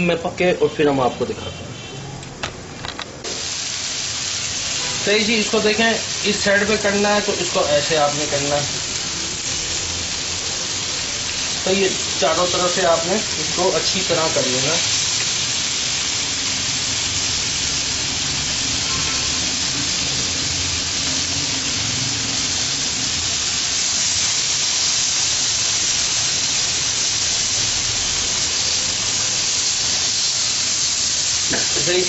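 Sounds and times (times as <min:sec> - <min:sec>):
chicken sizzling on a grill pan: 0:03.3 - 0:32.0.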